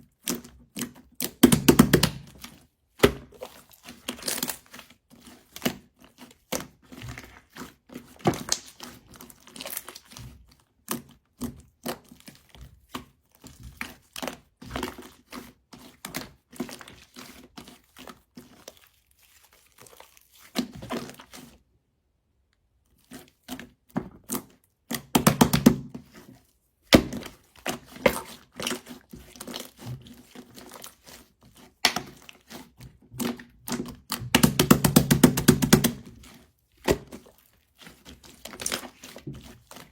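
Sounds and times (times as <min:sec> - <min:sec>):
slime squishing and popping: 0:01.2 - 0:02.4, 0:08.3 - 0:10.1, 0:24.9 - 0:25.9, 0:26.9 - 0:28.8, 0:31.8 - 0:32.2, 0:33.2 - 0:36.1.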